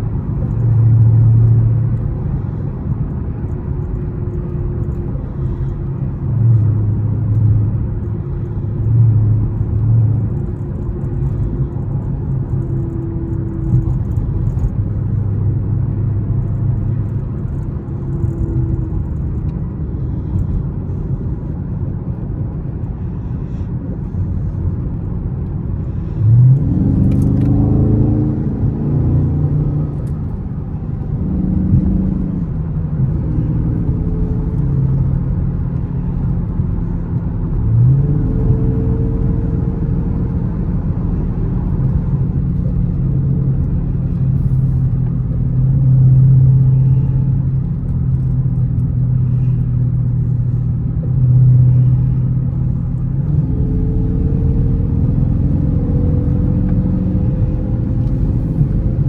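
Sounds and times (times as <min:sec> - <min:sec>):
road noise: 0:00.0 - 0:59.0
car engine revving: 0:25.7 - 0:59.0.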